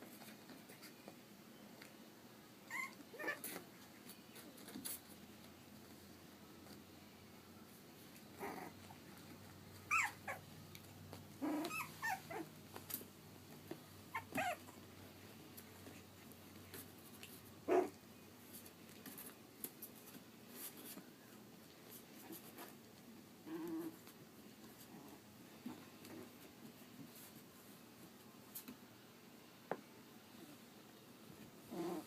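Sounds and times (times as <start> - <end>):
puppies whimpering and yipping: 2.6 - 3.6, 9.8 - 10.5, 11.4 - 12.5, 14.1 - 14.8
puppy growls: 2.7 - 3.6, 8.3 - 9.3, 9.9 - 10.5, 11.3 - 12.5, 14.1 - 14.8, 17.6 - 18.0, 23.4 - 24.2, 31.6 - 32.0.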